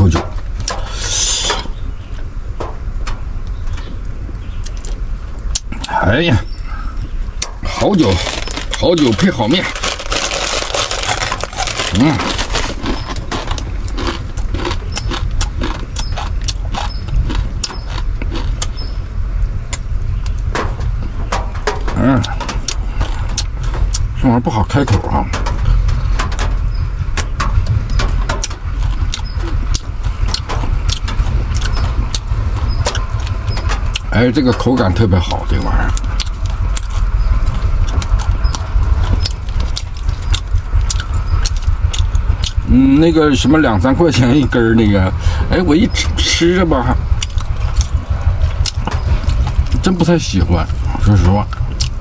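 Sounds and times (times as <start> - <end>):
steady low rumble: 0.0 - 52.0
crunchy chewing: 6.7 - 19.0, 27.6 - 42.7, 46.9 - 52.0
crunching dry noodles: 7.7 - 18.8.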